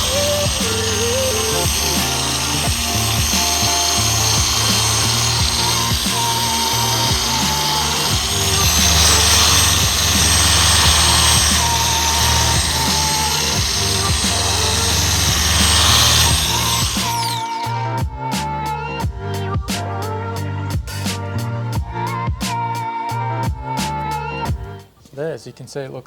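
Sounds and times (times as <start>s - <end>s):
electric polisher whirring: 0.0s - 17.8s
background music: 0.0s - 26.0s.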